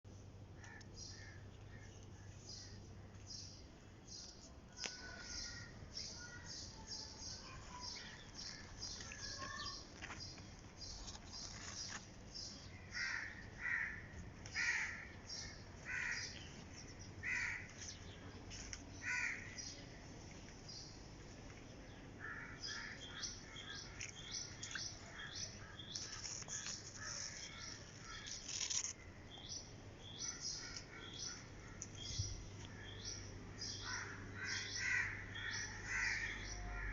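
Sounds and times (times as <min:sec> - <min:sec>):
small birds chirping: 0:00.6 - 0:13.5, 0:20.6 - 0:36.9.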